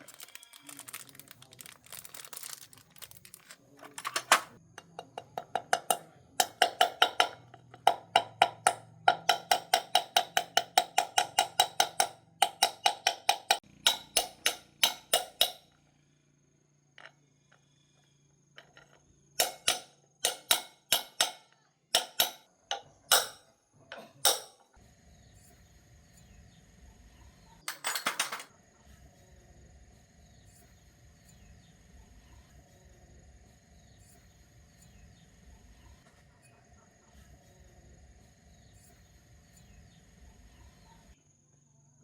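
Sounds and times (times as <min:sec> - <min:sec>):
hammer striking metal: 0:05.4 - 0:15.7, 0:19.4 - 0:23.5, 0:24.2 - 0:24.6.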